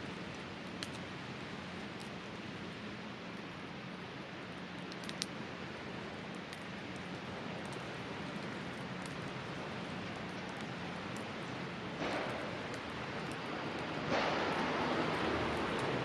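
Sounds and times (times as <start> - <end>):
campfire crackling and popping: 0.0 - 16.0
river rushing: 12.0 - 16.0.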